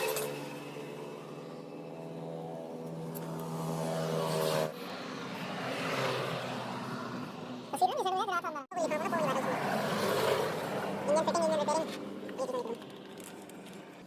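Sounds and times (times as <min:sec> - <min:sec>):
motorcycle engine revving: 0:00.0 - 0:05.2.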